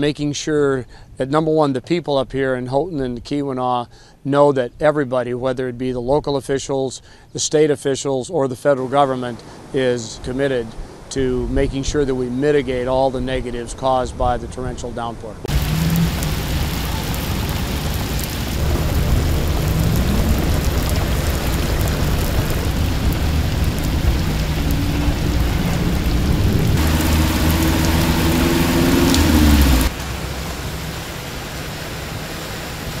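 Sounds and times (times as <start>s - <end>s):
cars driving through water: 15.5s - 33.0s
heavy rain pouring: 15.5s - 33.0s
low engine hum: 15.5s - 33.0s
water splashing from tyres: 15.5s - 33.0s.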